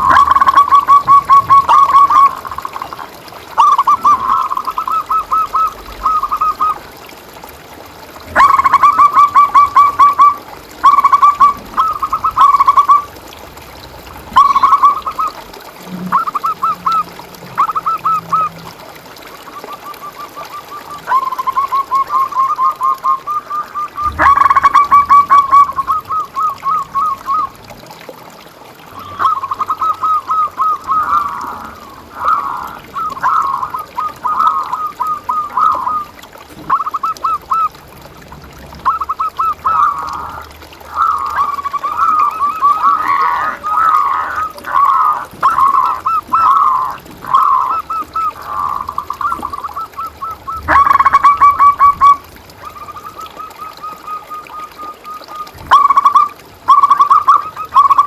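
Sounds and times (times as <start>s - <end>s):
doves cooing: 0.0s - 6.9s, 8.1s - 13.3s, 14.0s - 28.1s, 28.8s - 38.0s, 38.8s - 58.0s.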